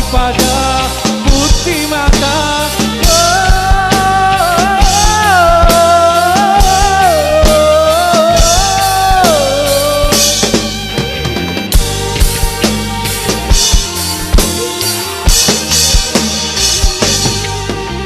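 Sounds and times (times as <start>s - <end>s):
bass: 0.0s - 18.0s
drum kit: 0.0s - 18.0s
lead melody sliding between notes: 0.0s - 18.0s.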